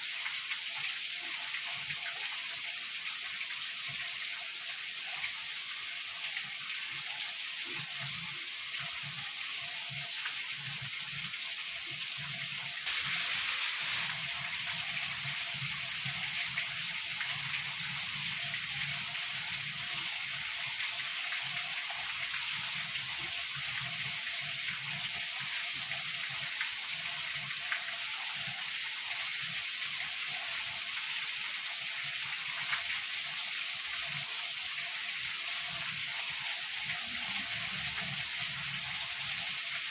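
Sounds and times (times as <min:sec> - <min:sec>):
heavy rain hissing: 0:12.8 - 0:14.3.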